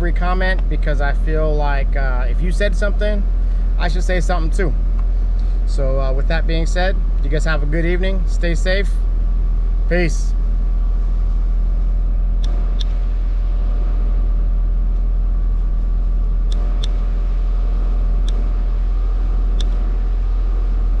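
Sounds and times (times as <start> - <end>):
car engine running: 0.0 - 21.0
short sharp clicks: 12.4 - 13.0, 16.5 - 17.0, 18.2 - 18.5, 19.6 - 19.9.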